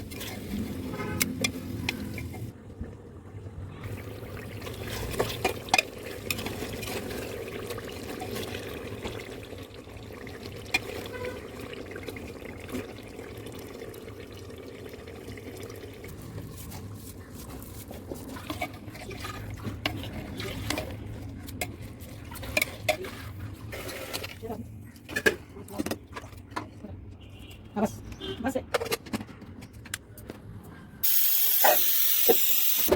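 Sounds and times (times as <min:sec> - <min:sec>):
water running and sloshing: 0:03.8 - 0:24.6.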